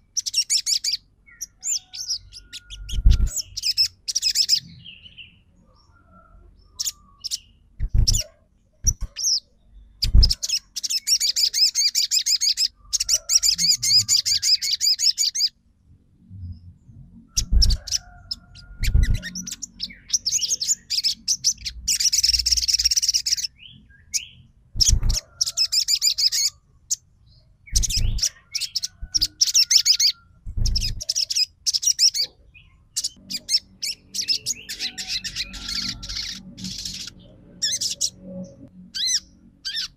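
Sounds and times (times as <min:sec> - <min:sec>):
songbird trilling chirps: 0:00.0 - 0:15.6, 0:17.2 - 0:39.9.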